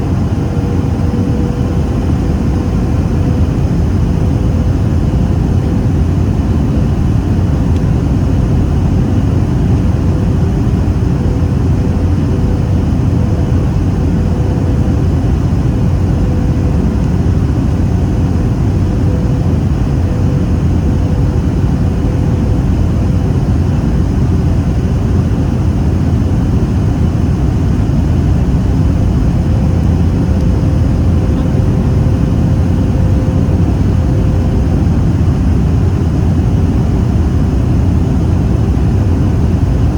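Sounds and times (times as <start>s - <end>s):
airplane cabin roar: 0.0s - 39.9s
faint steady hum: 0.0s - 39.9s.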